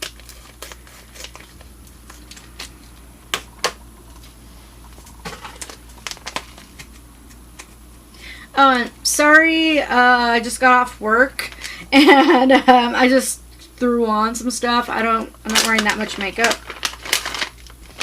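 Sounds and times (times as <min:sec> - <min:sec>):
plastic bag crinkling: 0:04.9 - 0:07.0, 0:15.4 - 0:18.0.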